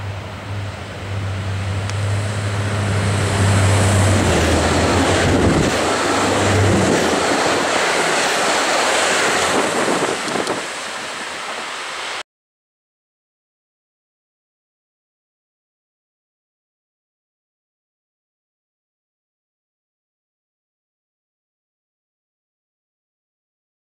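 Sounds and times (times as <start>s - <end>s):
train low drone: 0.0s - 12.2s
wheels rushing on rails: 0.0s - 12.2s.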